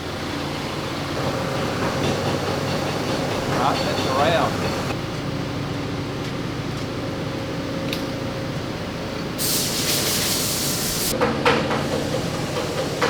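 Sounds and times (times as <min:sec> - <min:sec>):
forklift engine idling: 0:00.0 - 0:06.1
air hissing: 0:09.4 - 0:11.2.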